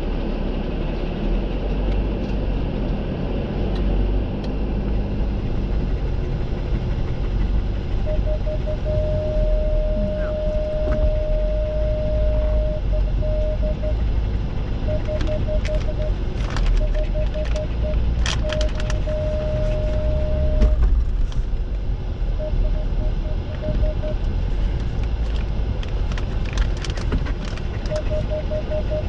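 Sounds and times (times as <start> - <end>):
steady low rumble: 0.0 - 29.0
high electronic warning beep: 8.0 - 14.1, 14.8 - 20.8, 22.4 - 24.2, 27.9 - 29.0
sharp clicks and knocks: 14.9 - 20.0.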